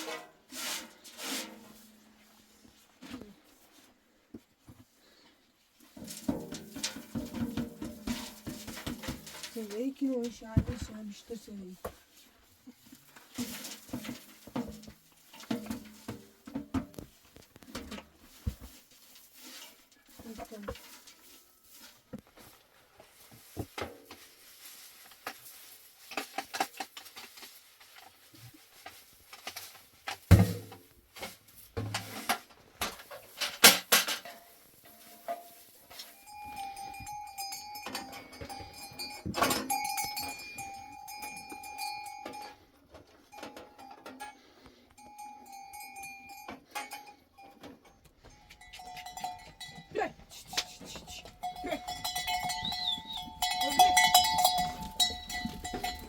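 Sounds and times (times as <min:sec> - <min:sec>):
knocks and clatter: 0:06.0 - 0:11.1, 0:50.6 - 0:56.0
animal bells ringing: 0:34.9 - 0:56.0.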